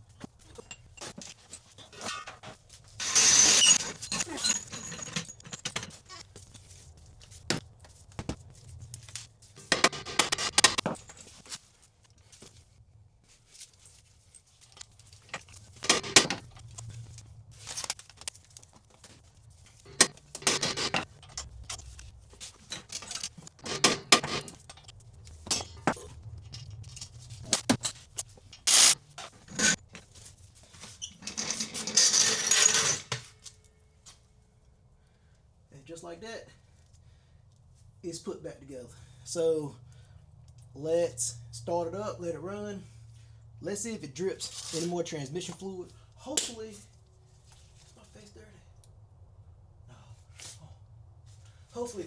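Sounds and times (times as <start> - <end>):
metal tools clanking and scraping: 0.3 - 6.3, 9.6 - 11.6, 14.6 - 18.0, 19.8 - 33.6.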